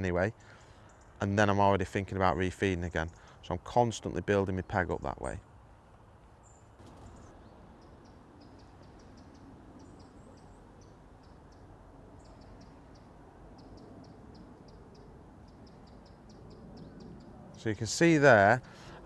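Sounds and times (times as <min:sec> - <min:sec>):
small birds chirping: 0:00.0 - 0:01.6, 0:02.7 - 0:05.5, 0:06.2 - 0:19.0
low steady background rumble: 0:00.0 - 0:19.0
bird trill: 0:06.4 - 0:17.7.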